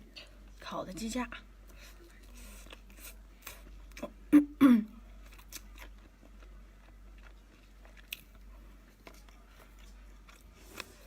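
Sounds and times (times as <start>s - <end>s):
person chewing chicken: 2.1s - 4.2s, 5.1s - 11.0s.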